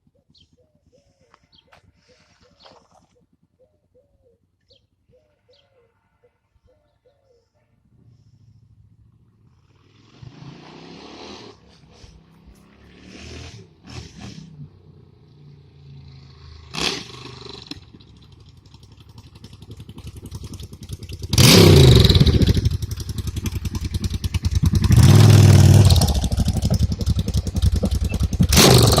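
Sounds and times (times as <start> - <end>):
motorcycle engine revving: 8.4 - 29.0.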